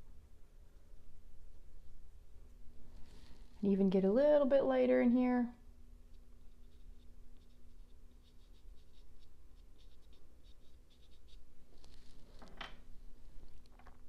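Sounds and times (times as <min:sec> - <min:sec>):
pastel scratching on paper: 0:06.1 - 0:12.2
pastel rubbing on paper: 0:06.2 - 0:12.2.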